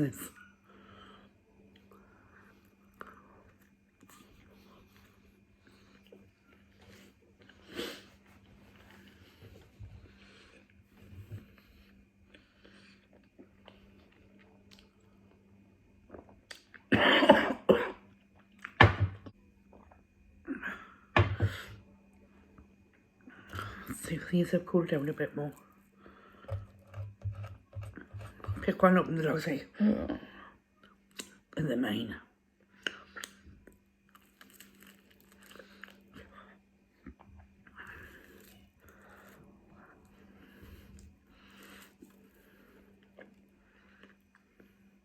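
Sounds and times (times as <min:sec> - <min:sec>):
chewing and crunching: 0:10.0 - 0:16.9, 0:32.7 - 0:44.9
woman coughing: 0:16.9 - 0:18.0.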